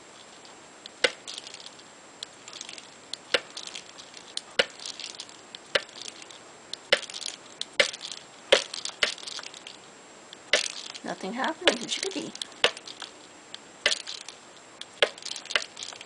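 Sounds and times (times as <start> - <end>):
budgie chatter: 11.0 - 13.0.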